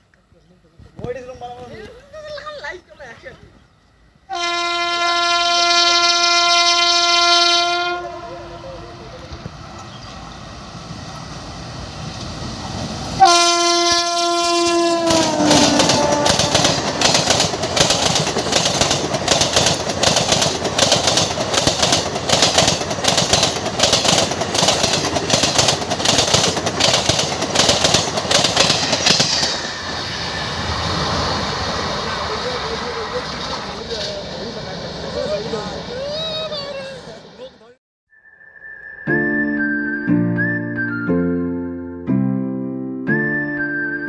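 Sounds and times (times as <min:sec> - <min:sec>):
train horn blasting: 0:04.3 - 0:09.0, 0:13.2 - 0:17.0
train wheels clattering on bridge: 0:15.0 - 0:29.8.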